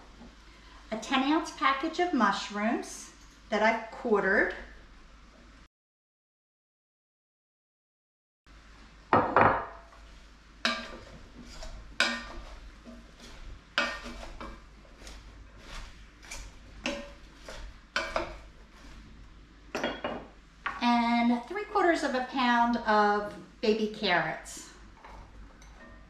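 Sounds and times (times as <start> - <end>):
utensil clanking in cast iron pot: 10.6 - 14.6, 16.2 - 18.4.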